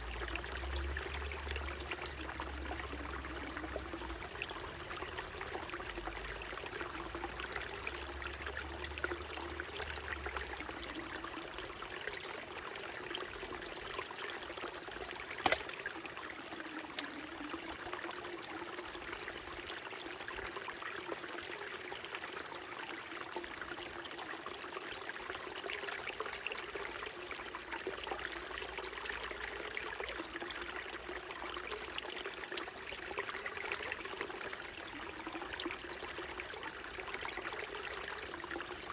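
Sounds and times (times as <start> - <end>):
stream water trickling: 0.0 - 38.9
sharp click: 15.4 - 15.7.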